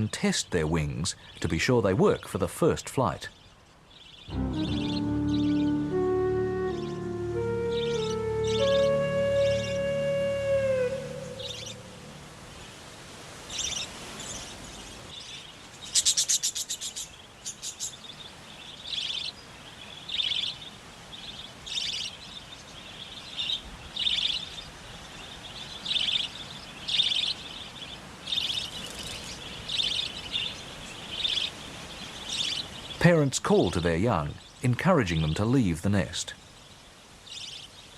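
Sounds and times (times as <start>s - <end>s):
budgerigars chirping: 4.0s - 9.9s.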